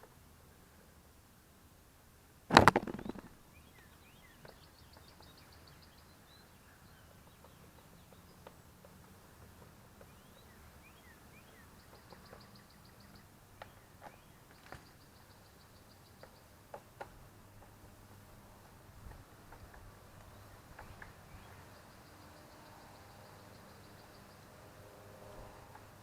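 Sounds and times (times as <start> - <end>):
loud clatter: 2.5 - 3.3.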